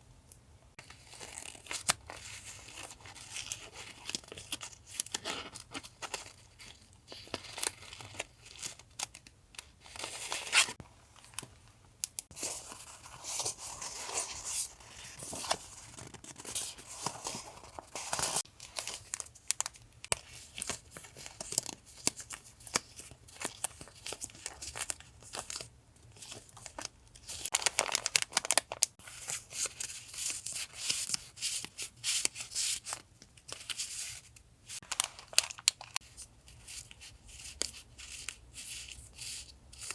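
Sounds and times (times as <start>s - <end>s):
packaging crinkling and rustling: 12.2s - 38.3s
packaging tearing: 27.4s - 28.9s.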